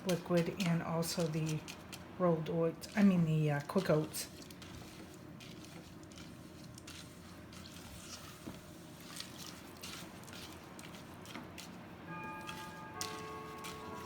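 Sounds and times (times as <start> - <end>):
spoon stirring thick mix in bowl: 0.0 - 14.0
music: 12.1 - 14.0.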